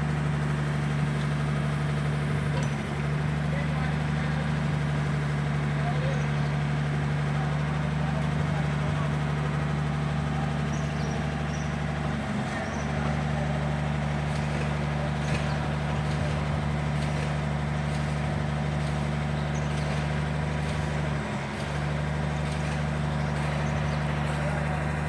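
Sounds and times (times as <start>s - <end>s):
motor humming: 0.0s - 25.0s.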